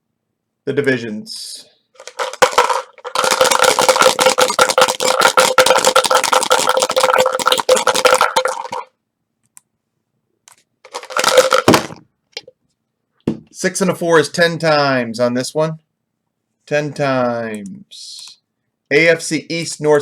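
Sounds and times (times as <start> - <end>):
dice clattering out: 2.0 - 8.9, 10.9 - 12.0
dice rattling in shaker cup: 2.0 - 8.9, 10.9 - 11.9.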